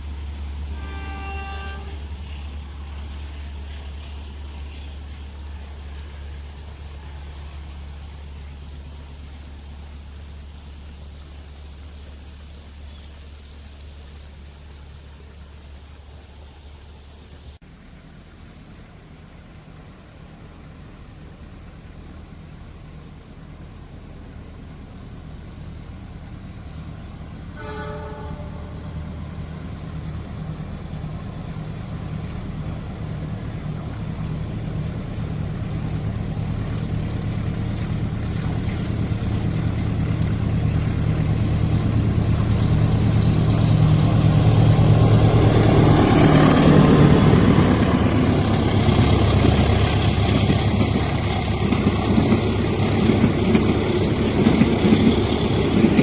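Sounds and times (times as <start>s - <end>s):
train wheels rumbling and rattling: 0.0s - 17.6s, 18.5s - 56.0s
diesel engine drone: 0.0s - 56.0s
train horn blast: 0.6s - 2.5s, 27.5s - 29.3s.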